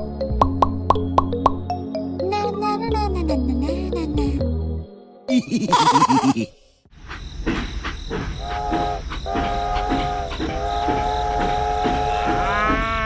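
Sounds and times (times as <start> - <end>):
train wheels clacking on rails: 7.0 - 13.0
train horn: 8.4 - 13.0.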